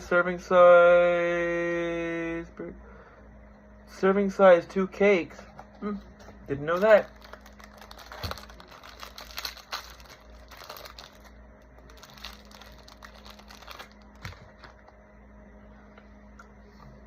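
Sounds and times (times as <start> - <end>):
plastic wrapper crinkling: 6.7 - 14.9.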